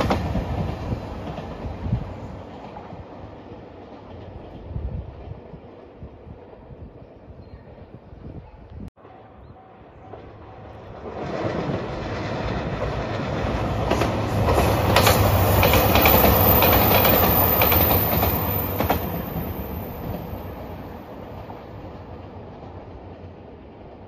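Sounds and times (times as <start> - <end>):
diesel train passing: 0.0 - 7.0, 9.0 - 24.0
wheels clicking over rail joints: 11.0 - 20.4.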